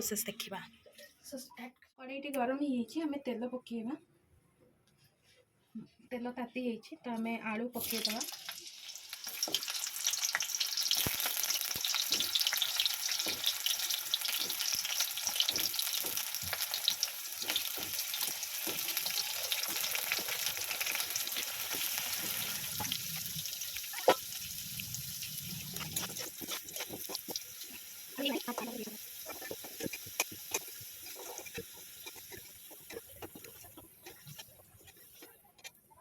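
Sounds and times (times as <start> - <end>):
potatoes frying in oil: 7.8 - 35.5.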